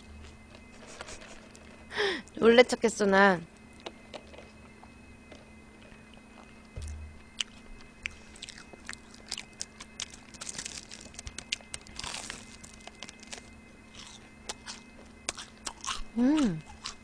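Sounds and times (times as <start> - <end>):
faint hum: 0.0 - 17.0
crunchy chewing: 3.6 - 17.0.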